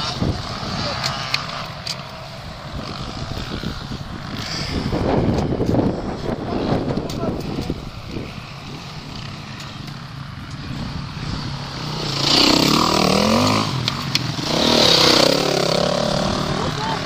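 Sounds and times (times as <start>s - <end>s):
off-road vehicle engine revving: 11.2s - 17.0s.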